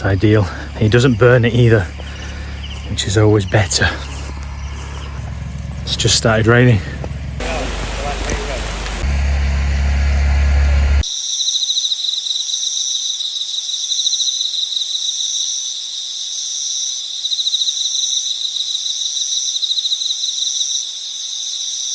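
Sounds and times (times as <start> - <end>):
insects trilling: 0.0 - 9.1, 11.0 - 21.9
low hum: 0.0 - 11.0.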